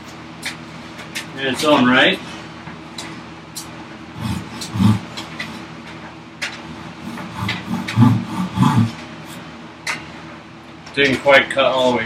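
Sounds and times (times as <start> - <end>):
steady low hum: 0.0 - 11.0
hand tools scraping wood: 4.2 - 5.6, 6.9 - 9.4.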